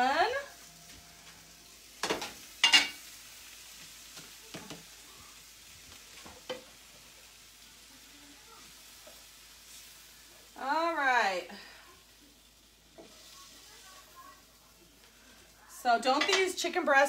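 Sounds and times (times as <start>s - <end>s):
chicken sizzling faintly: 0.0s - 17.0s
cookware clattering: 2.0s - 3.0s, 16.0s - 16.7s.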